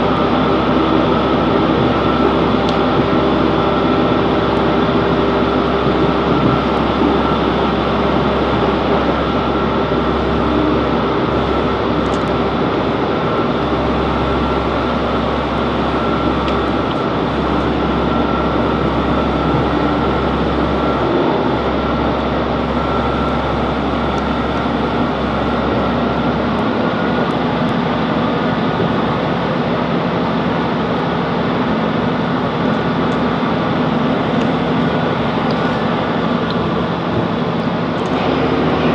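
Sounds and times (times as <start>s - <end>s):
train wheels rumbling on rails: 0.0s - 27.7s
diesel engine drone: 0.0s - 38.9s.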